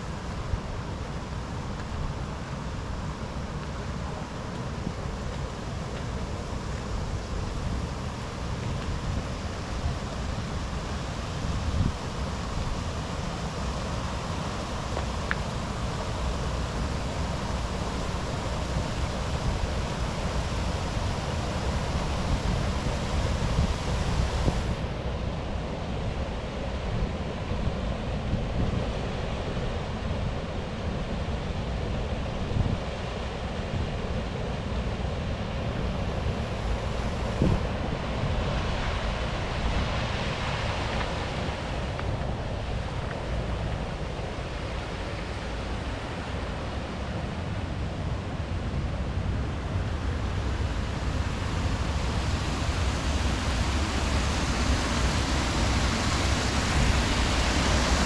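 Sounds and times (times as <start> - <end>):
river water rushing: 0.0 - 58.0
wind rumbling on microphone: 0.0 - 58.0.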